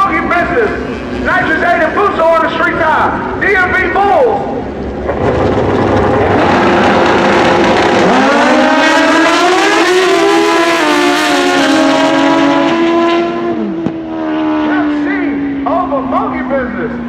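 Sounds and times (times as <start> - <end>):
racing motorcycle engine: 4.6 - 17.0.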